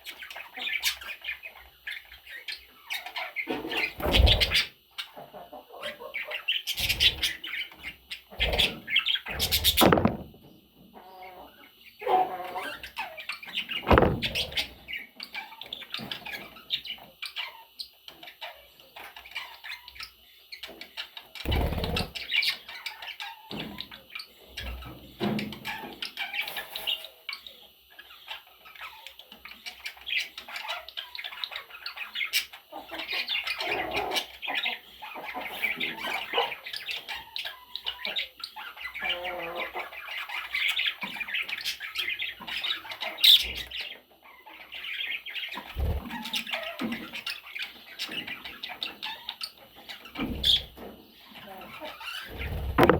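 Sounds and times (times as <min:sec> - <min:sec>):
budgerigars chattering and chirping: 0:00.1 - 0:10.3, 0:11.0 - 0:52.9
short sudden thumps: 0:09.3 - 0:10.5, 0:13.8 - 0:14.6, 0:52.4 - 0:52.9.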